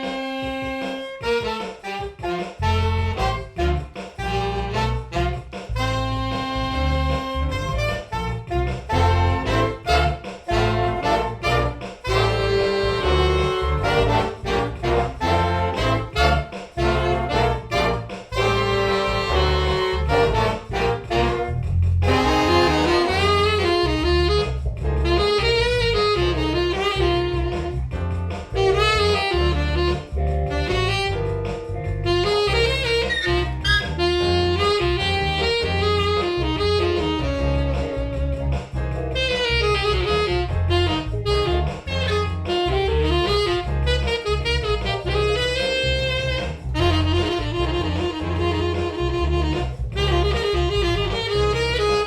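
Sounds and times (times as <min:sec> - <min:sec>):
saxophones and brass: 0:00.0 - 0:38.4, 0:39.2 - 0:52.0
jazz big band playing: 0:00.0 - 0:52.0
pulsing bass line: 0:00.4 - 0:52.0
winding melody line: 0:32.1 - 0:35.8.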